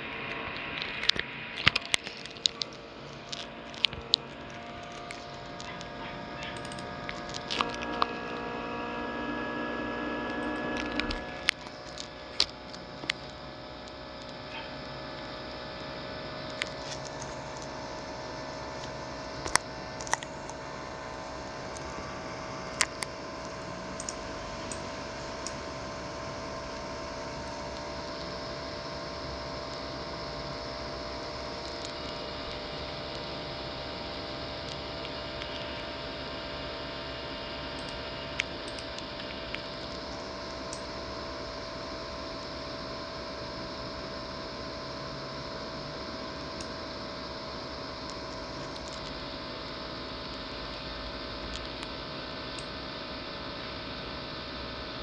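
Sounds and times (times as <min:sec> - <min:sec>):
laptop cooling fan whirring: 0:00.0 - 0:55.0
sharp clicks: 0:00.3 - 0:15.6, 0:37.8 - 0:40.9.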